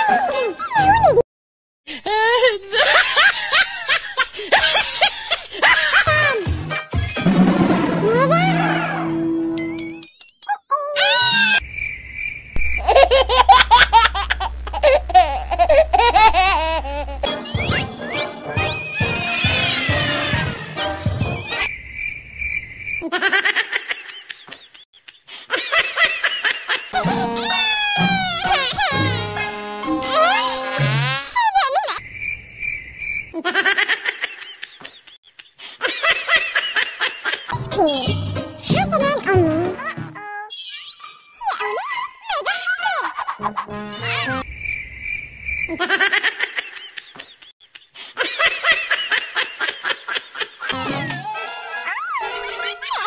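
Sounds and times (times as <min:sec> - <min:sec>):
high-pitched child-like laughter: 0:12.8 - 0:17.6, 0:23.0 - 0:24.8, 0:25.4 - 0:29.4, 0:33.4 - 0:35.0, 0:41.4 - 0:44.4, 0:45.7 - 0:53.0.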